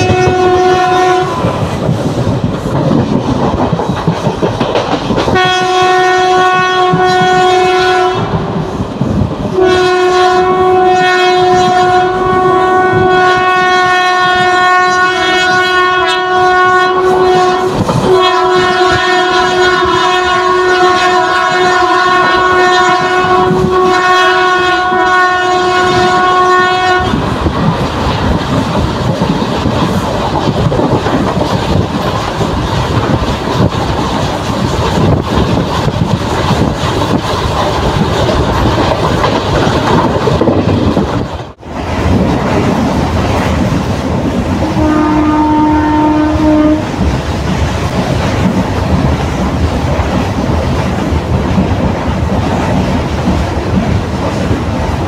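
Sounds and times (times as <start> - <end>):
train horn: 0.0 - 1.7, 5.3 - 8.5, 9.5 - 27.3, 44.6 - 47.0
lower train horn: 0.0 - 1.8, 5.3 - 8.7, 9.5 - 27.4, 44.6 - 47.0
train coach rumble: 0.0 - 55.0
wheels clattering over rails: 1.4 - 5.4.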